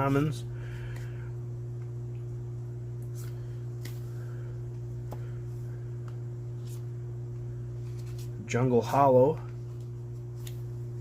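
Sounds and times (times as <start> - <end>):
low electrical hum: 0.0 - 11.0
trading cards being handled: 3.0 - 11.0.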